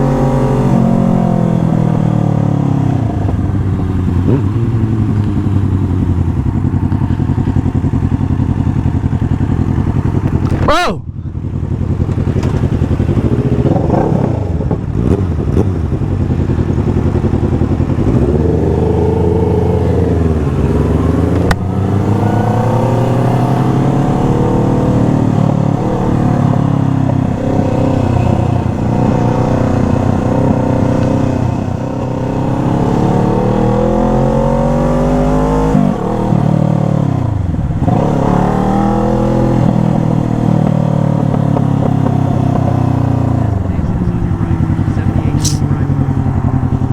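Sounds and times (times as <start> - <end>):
motorcycle engine accelerating: 0.0 - 46.9
sharp click: 45.4 - 45.7.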